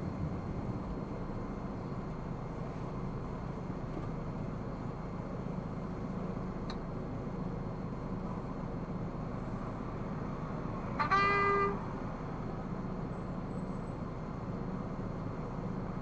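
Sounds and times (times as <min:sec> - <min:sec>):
car driving in traffic: 0:00.0 - 0:16.0
car horn toot: 0:11.0 - 0:11.9.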